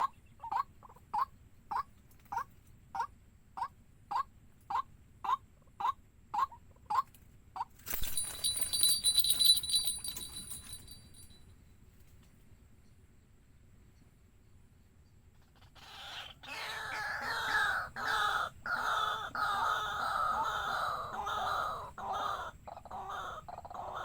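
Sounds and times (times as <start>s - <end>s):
waterhen calling: 15.8s - 24.0s.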